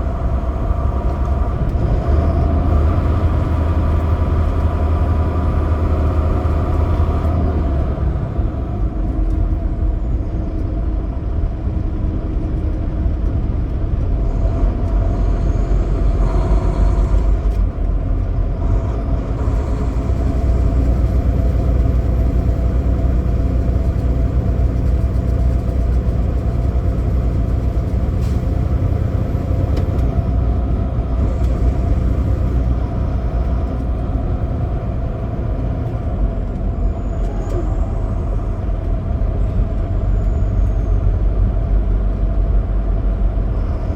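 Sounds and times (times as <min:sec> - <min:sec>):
diesel truck engine droning: 0:00.0 - 0:43.9
road rumble: 0:00.0 - 0:43.9.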